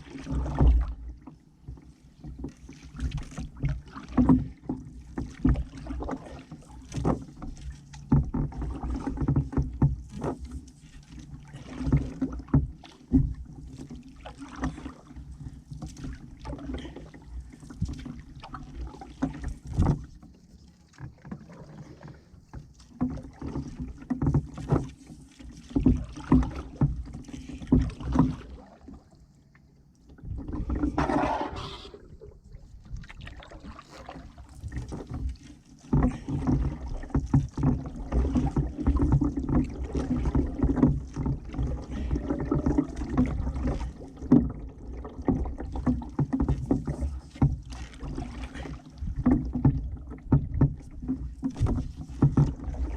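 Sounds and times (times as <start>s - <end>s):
paddle knocking against canoe: 0.0s - 52.9s
paddle strokes in water: 0.0s - 52.9s.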